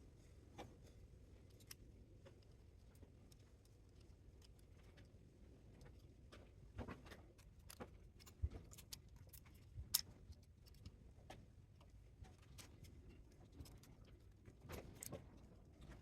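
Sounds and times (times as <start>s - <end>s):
tools and metal parts clicking: 7.1s - 11.0s.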